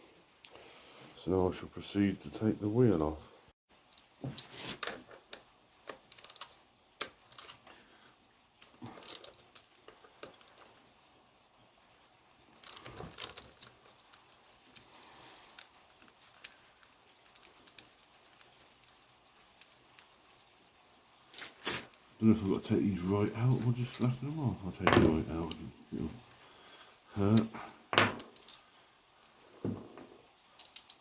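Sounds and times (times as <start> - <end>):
hand tools clicking and clinking: 8.6 - 10.9, 12.5 - 20.6, 24.8 - 31.0.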